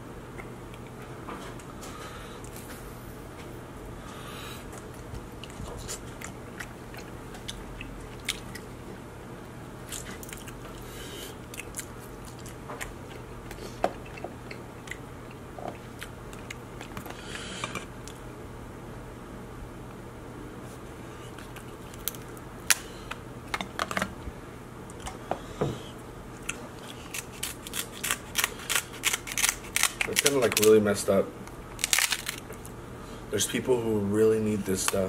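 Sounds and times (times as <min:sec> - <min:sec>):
person chewing crab meat: 0:04.6 - 0:08.8, 0:09.8 - 0:18.2, 0:26.3 - 0:30.4
crab shell crackling: 0:26.8 - 0:30.8, 0:31.7 - 0:32.8.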